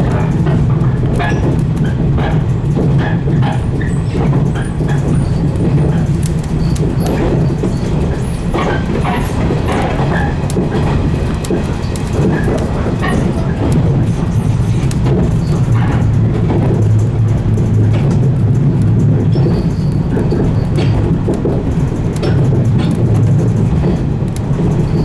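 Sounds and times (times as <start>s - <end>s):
electric train rumble: 0.0s - 25.0s
clicks and squeaks: 0.4s - 16.6s.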